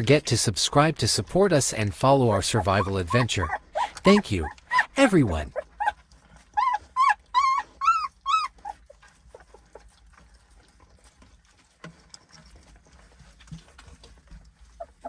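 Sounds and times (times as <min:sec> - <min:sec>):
dog whining yelps: 0:02.6 - 0:04.9, 0:05.5 - 0:09.0, 0:14.7 - 0:15.0.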